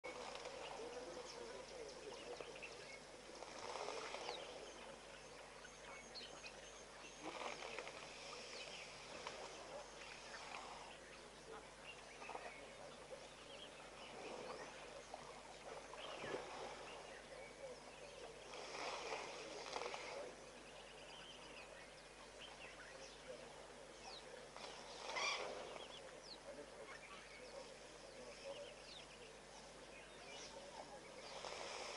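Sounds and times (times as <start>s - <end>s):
steady hiss: 12.5s - 31.9s.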